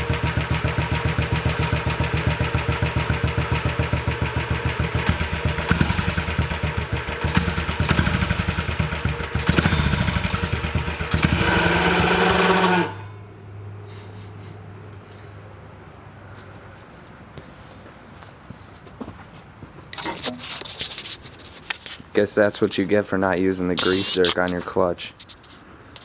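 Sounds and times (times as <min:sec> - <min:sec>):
minibike engine running: 0:00.0 - 0:13.1.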